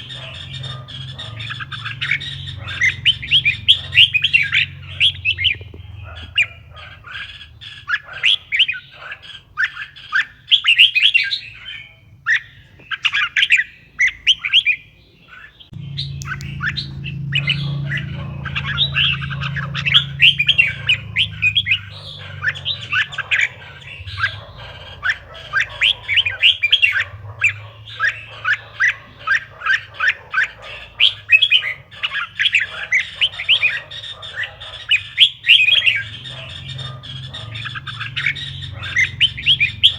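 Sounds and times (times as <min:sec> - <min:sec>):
bird singing whistled notes: 0:00.0 - 0:08.9, 0:09.6 - 0:39.9
low steady hum: 0:15.8 - 0:27.6.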